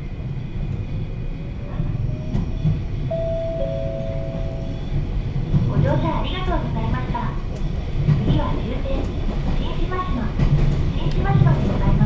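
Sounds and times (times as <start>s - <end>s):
train wheels rumbling on track: 0.0s - 12.0s
second lower tone: 3.1s - 5.0s.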